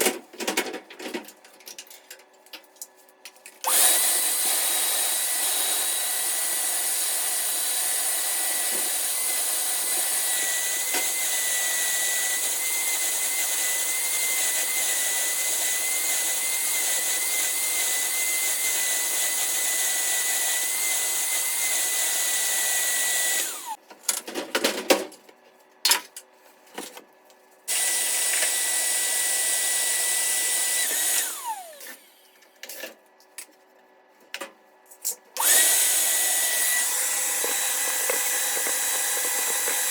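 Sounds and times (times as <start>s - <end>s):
electric motor whining: 3.7s - 23.8s, 27.7s - 32.1s, 35.4s - 39.9s.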